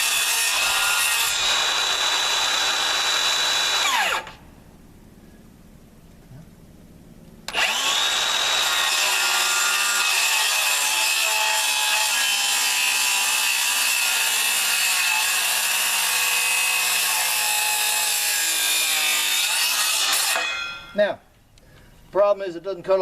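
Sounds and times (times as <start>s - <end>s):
circular saw cutting wood: 0.0s - 4.4s, 7.5s - 20.8s.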